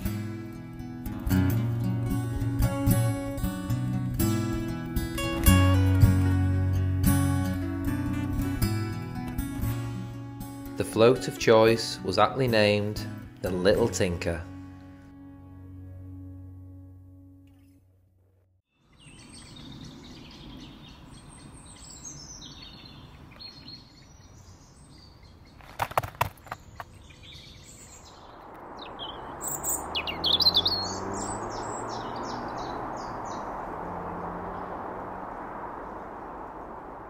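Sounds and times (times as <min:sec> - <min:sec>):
outdoor background noise: 0:17.4 - 0:37.0
birds singing and chirping: 0:18.8 - 0:36.7
steady rushing noise: 0:27.8 - 0:37.0.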